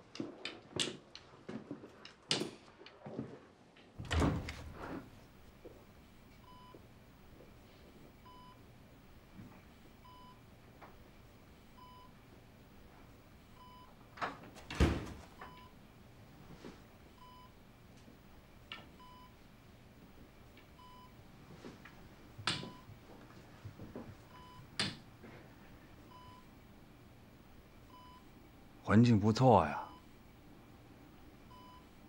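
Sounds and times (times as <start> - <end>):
patient monitor beeping: 6.4 - 6.8, 8.2 - 8.6, 10.0 - 10.4, 11.8 - 12.2, 13.6 - 14.0, 15.4 - 15.8, 17.2 - 17.6, 19.0 - 19.4, 20.8 - 21.2, 22.5 - 23.0, 24.3 - 24.8, 26.1 - 26.5, 27.9 - 28.3, 29.7 - 30.1, 31.5 - 31.9.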